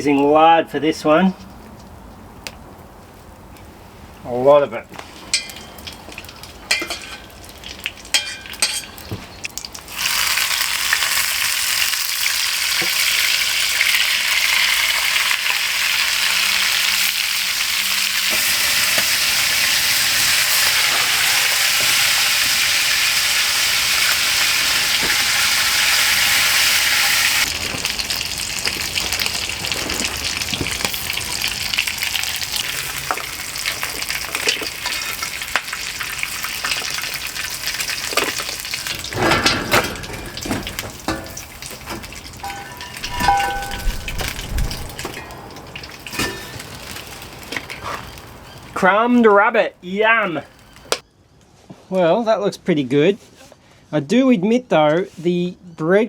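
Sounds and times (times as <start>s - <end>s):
meat frying in hot fat: 5.0s - 48.8s.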